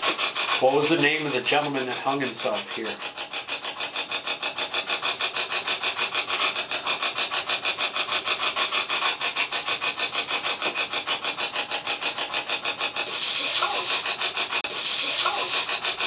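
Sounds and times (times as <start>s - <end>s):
chopped radio static: 13.2s - 14.0s.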